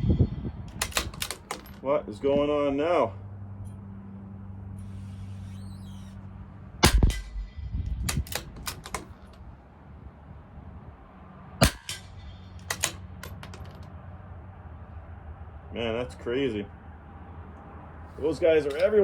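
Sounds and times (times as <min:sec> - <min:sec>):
rifle shots: 0:00.7 - 0:01.7, 0:06.8 - 0:09.1, 0:11.6 - 0:13.4
rifle bolt clicking: 0:00.7 - 0:01.8, 0:08.0 - 0:09.4, 0:11.6 - 0:13.7.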